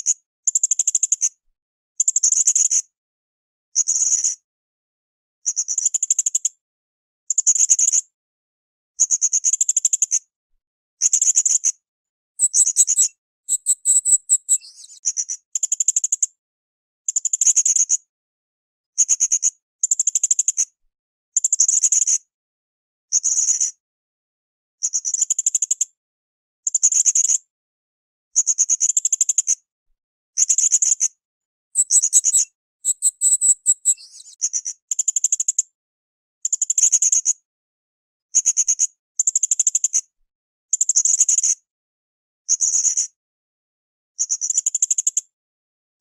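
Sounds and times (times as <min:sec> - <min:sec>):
parrot chittering: 0:12.4 - 0:14.6, 0:31.8 - 0:34.0.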